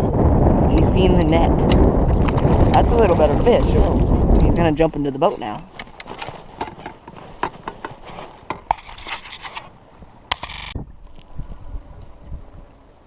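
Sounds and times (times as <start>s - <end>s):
fishing gear clicking and scraping: 5.7s - 9.7s, 10.3s - 11.3s.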